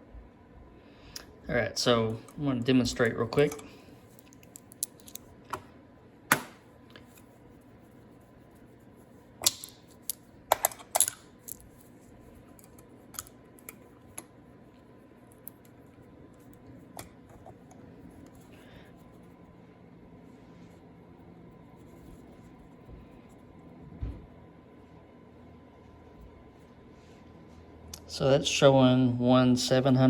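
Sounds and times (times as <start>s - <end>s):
metallic clicks of small parts: 3.4s - 5.3s, 9.4s - 11.7s.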